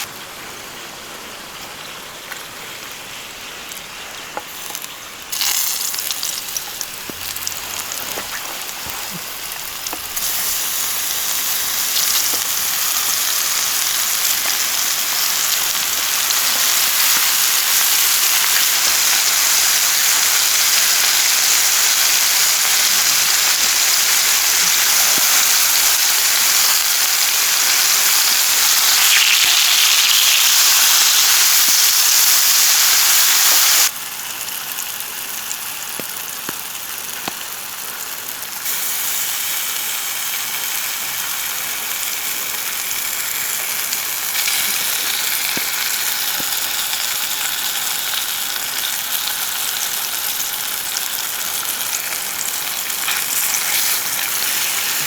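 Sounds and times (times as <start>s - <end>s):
heavy rain hissing: 0.0s - 19.0s.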